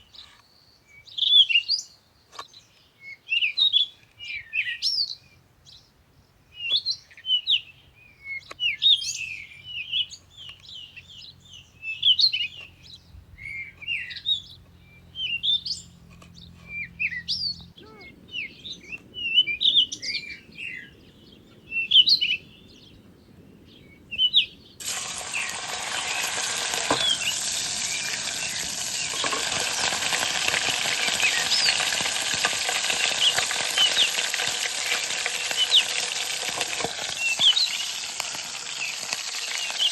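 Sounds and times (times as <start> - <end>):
songbirds chirping: 0.0 - 39.9
food frying sizzle: 24.8 - 39.9.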